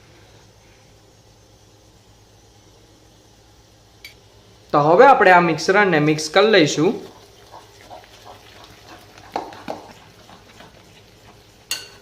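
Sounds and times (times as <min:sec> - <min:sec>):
batter stirred by hand: 0:06.4 - 0:12.0.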